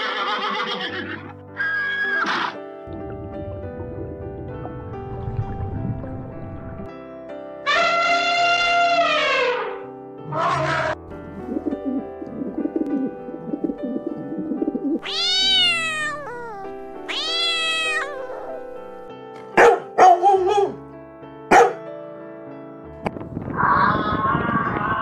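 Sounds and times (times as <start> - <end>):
background music: 0.0 - 23.6
pigeon cooing: 11.3 - 15.0
cat meowing: 15.0 - 18.7
dog barking: 19.6 - 20.8, 21.5 - 21.9.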